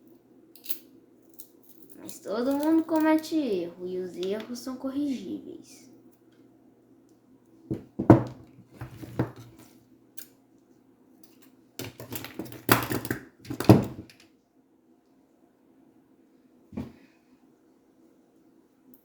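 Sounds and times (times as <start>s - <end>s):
tools knocking on work surface: 7.7s - 8.4s.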